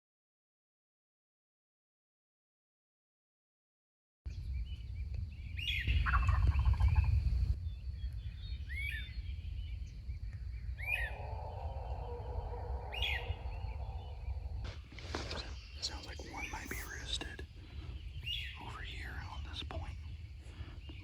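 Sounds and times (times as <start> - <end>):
low rumble: 4.3 - 21.0
small bird chirping: 4.3 - 21.0
turkey gobbling: 6.0 - 7.1.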